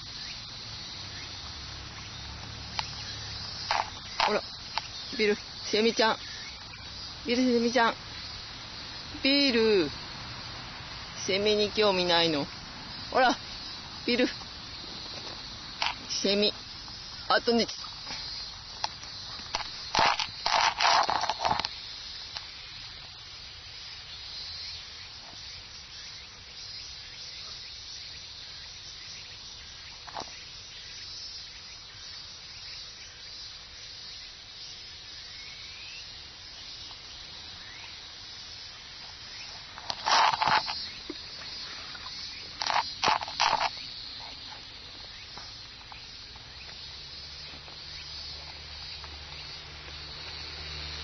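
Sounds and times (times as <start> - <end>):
cicada chorus: 0.0 - 51.0
loud cicada bursts: 0.0 - 51.0.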